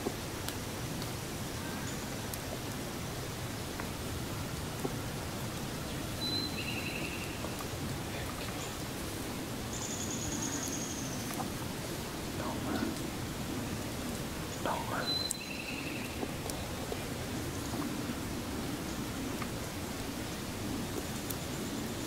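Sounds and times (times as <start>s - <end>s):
rain hissing in woodland: 0.0s - 22.0s
small birds chirping: 0.1s - 22.0s.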